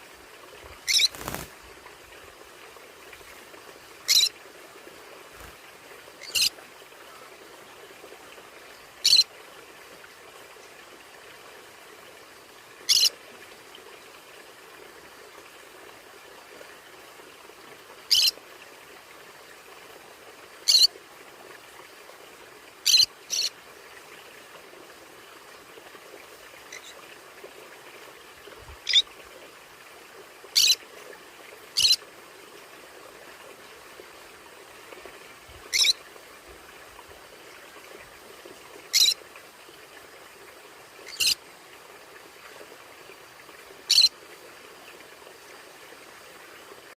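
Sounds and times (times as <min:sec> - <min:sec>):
steady background hiss: 0:00.0 - 0:46.9
parrot chirping: 0:00.9 - 0:01.3, 0:04.1 - 0:04.3, 0:06.2 - 0:06.5, 0:35.7 - 0:36.0, 0:38.9 - 0:39.2, 0:41.1 - 0:41.4.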